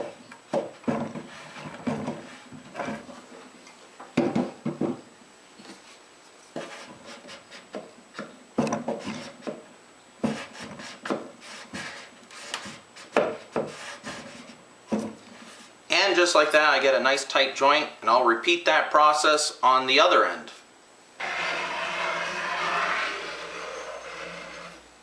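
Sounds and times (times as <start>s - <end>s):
iron rubbing along panel edge: 21.2s - 24.9s.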